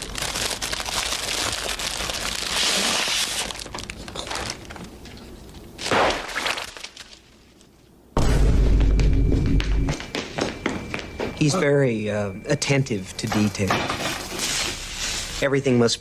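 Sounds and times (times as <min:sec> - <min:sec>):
dense crinkling and crackling: 0:00.0 - 0:08.0.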